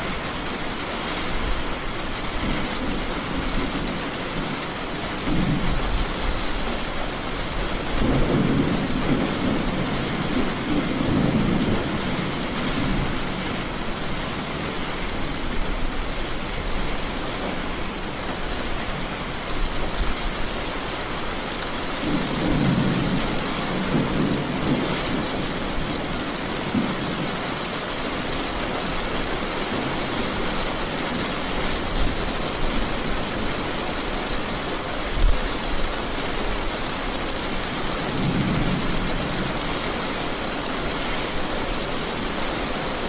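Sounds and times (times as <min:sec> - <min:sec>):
heavy rain: 0:00.0 - 0:43.0
thunder rolling: 0:07.9 - 0:13.5, 0:22.0 - 0:27.4.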